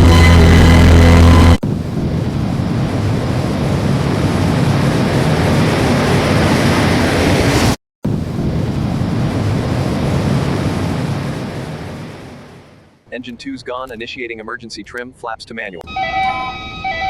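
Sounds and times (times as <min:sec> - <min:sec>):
airliner cabin roar: 0:00.0 - 0:13.0.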